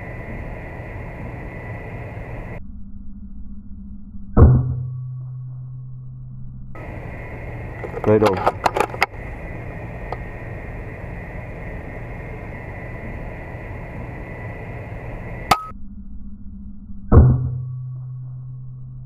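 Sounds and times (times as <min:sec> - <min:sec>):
low hum: 0:00.0 - 0:19.0
air rifle crack: 0:06.8 - 0:15.7.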